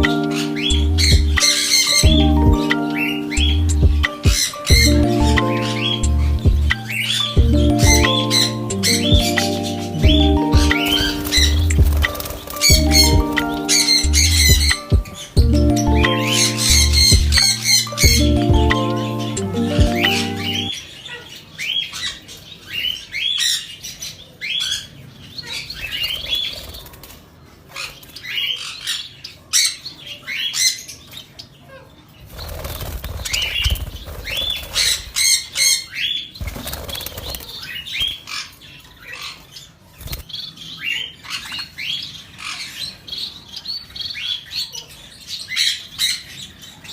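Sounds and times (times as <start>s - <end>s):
budgerigars chirping: 0.0s - 15.3s
wings flapping: 10.9s - 12.7s, 32.3s - 35.0s, 36.4s - 37.6s.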